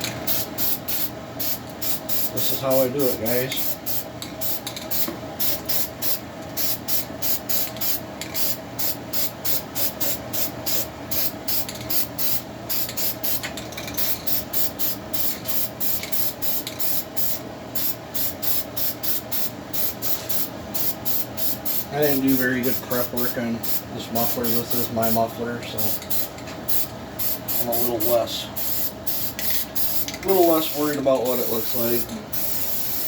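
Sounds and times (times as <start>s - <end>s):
spray can hissing in bursts: 25.8s - 33.0s.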